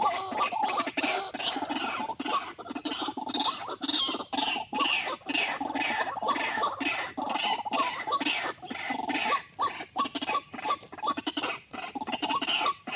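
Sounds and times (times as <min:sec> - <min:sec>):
waterhen harsh croaking calls: 0:00.0 - 0:12.9.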